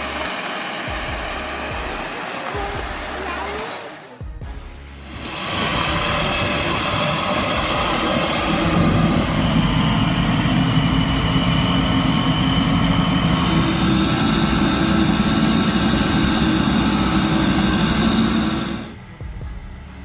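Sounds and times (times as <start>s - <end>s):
truck diesel engine running: 0.0s - 3.6s, 4.8s - 20.0s
thin high whine: 4.9s - 19.9s.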